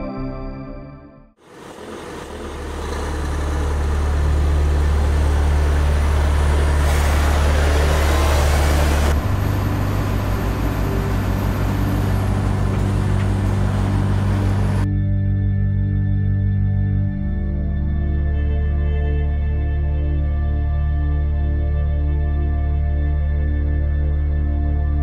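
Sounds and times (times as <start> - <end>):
heavy truck driving: 1.4 - 14.9
low held music notes: 2.2 - 25.0.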